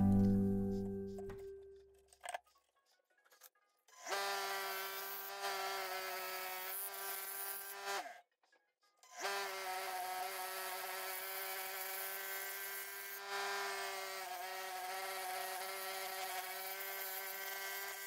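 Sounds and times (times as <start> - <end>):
turning tool cutting wood: 4.0 - 8.2, 9.1 - 18.0.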